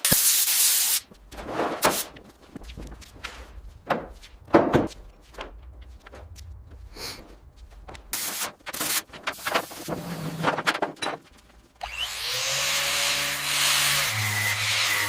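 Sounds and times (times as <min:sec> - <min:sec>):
bursts of hissing: 0:00.0 - 0:01.0
knocks and clunks: 0:01.3 - 0:11.7.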